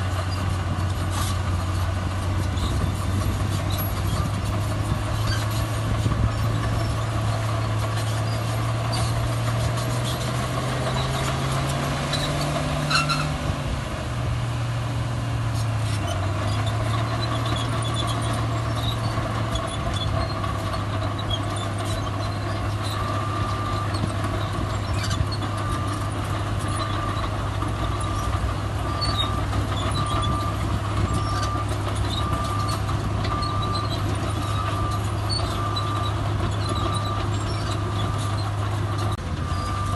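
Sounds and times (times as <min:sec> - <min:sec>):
heavy diesel machinery running: 0:00.0 - 0:39.9
reversing alarm beeping: 0:28.9 - 0:39.9.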